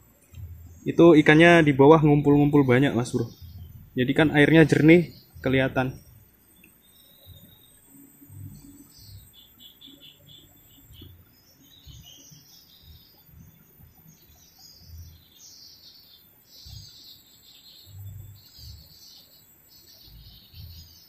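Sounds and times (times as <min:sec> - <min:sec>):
birds chirping and twittering: 0:00.0 - 0:21.0
dull low thumps: 0:02.0 - 0:04.3.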